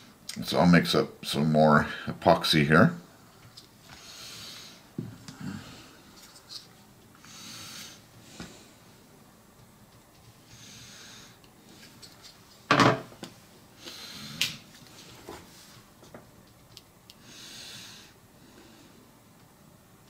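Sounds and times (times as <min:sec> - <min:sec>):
soft nasal breaths: 0:03.1 - 0:09.2, 0:10.2 - 0:12.4, 0:13.6 - 0:15.9, 0:17.1 - 0:19.4.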